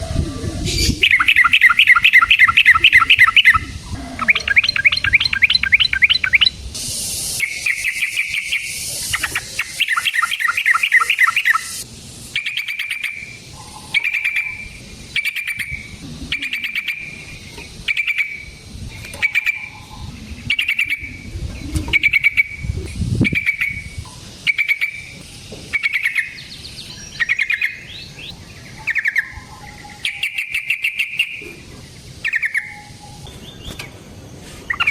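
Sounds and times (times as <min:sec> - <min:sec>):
bird chattering trills: 0:00.0 - 0:34.0.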